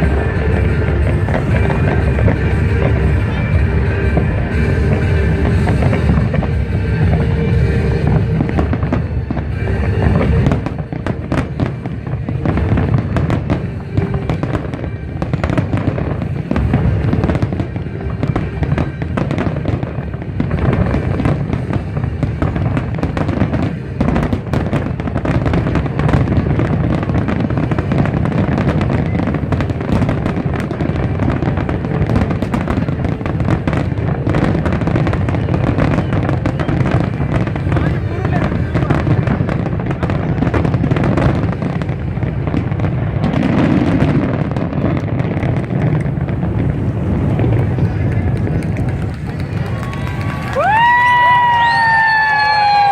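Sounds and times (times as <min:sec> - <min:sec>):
low rumble: 0:00.0 - 0:18.6, 0:45.0 - 0:51.4
fireworks bangs and crackling: 0:00.0 - 0:52.9.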